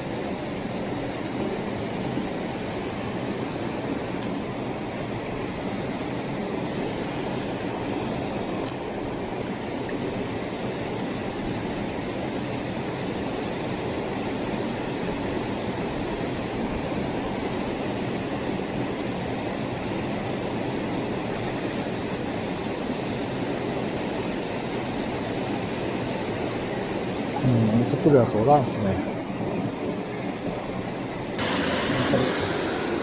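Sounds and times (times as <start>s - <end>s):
stream water rushing over rocks: 31.4s - 33.0s.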